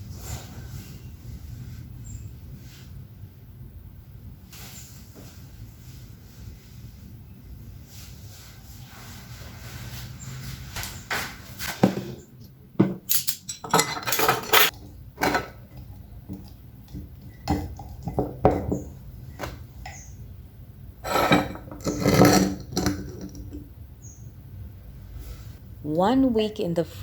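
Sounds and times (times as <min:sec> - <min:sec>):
dishes and cutlery clattering: 0:12.8 - 0:16.4, 0:21.0 - 0:23.4.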